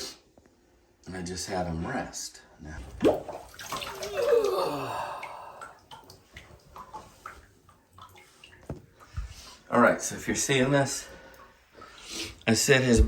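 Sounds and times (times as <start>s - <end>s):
person groaning with effort: 4.0s - 5.8s.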